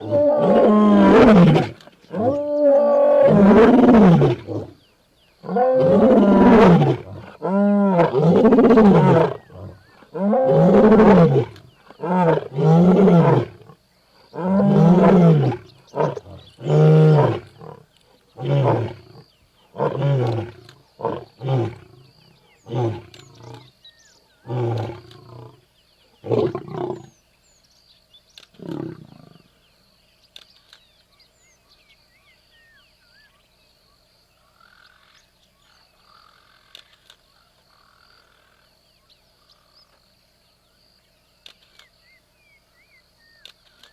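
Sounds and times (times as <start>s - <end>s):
lion roaring: 0.0s - 4.8s, 5.4s - 23.7s, 24.5s - 25.6s, 26.2s - 27.1s, 28.6s - 29.4s.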